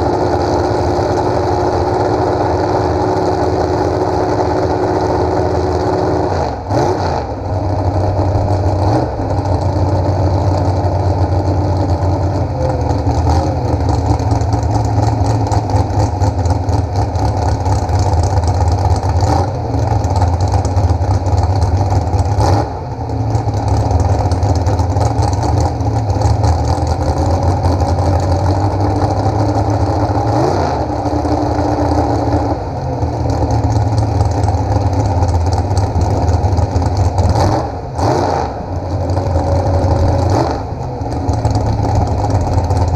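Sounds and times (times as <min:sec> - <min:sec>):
engine idling: 0:00.0 - 0:42.9.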